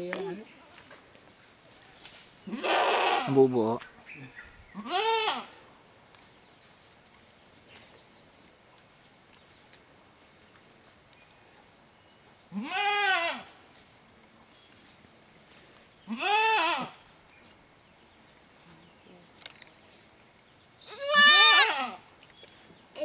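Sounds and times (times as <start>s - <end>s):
goat bleating: 2.5s - 3.4s, 4.8s - 5.5s, 12.6s - 13.5s, 16.1s - 17.0s, 20.9s - 22.0s.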